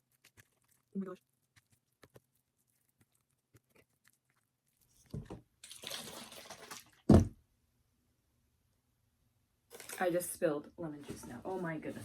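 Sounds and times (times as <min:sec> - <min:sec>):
juice splashing from bottle: 0:05.6 - 0:07.2.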